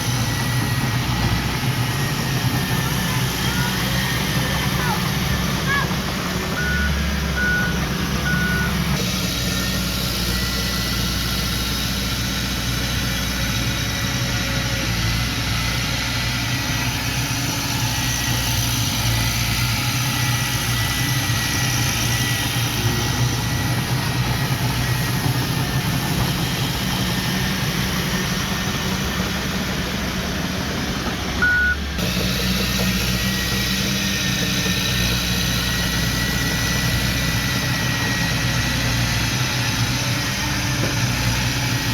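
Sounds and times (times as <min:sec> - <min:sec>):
heavy machinery diesel engines: 0:00.0 - 0:41.9
back-up alarm beeps: 0:06.5 - 0:08.9, 0:31.4 - 0:31.9.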